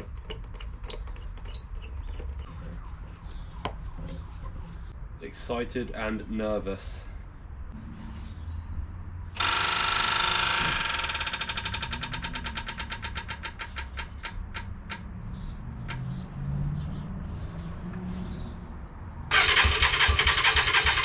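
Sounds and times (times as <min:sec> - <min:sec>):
electric fuel pump buzzing and ticking: 0:09.4 - 0:12.4.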